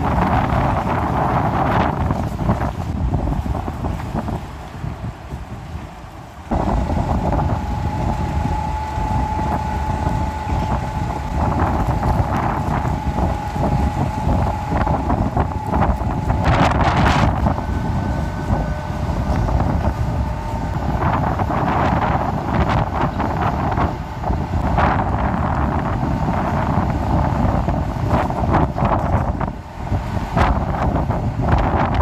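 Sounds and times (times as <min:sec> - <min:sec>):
gusty wind buffeting microphone: 0:00.0 - 0:32.0
thin steady high tone: 0:06.5 - 0:24.2.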